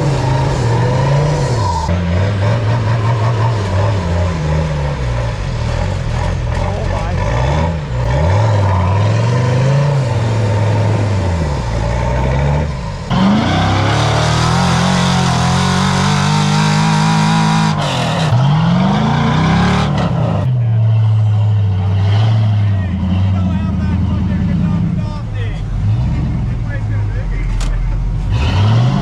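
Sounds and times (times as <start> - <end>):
vehicle engine revving: 0.0 - 29.0.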